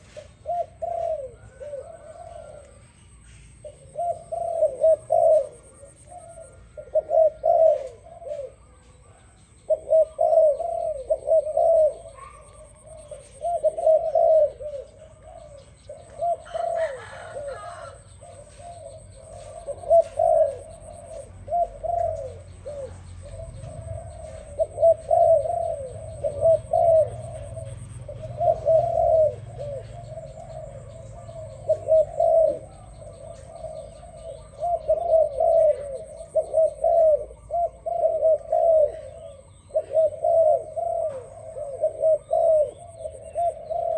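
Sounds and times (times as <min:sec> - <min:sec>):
doves cooing: 0:00.0 - 0:43.9.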